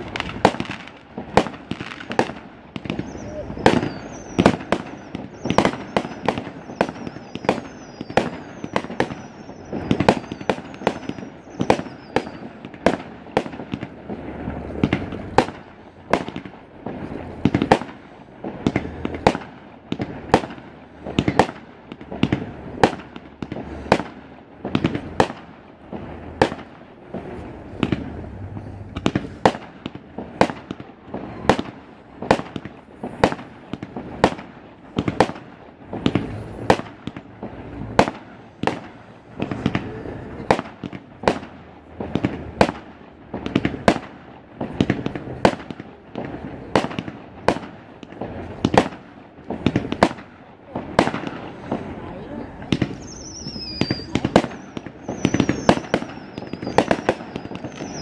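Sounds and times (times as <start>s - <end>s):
falling firework whistles: 0.0s - 29.8s, 30.4s - 34.4s, 35.0s - 42.8s, 52.8s - 58.0s
fireworks bangs: 0.0s - 58.0s
low rumble: 27.0s - 30.2s.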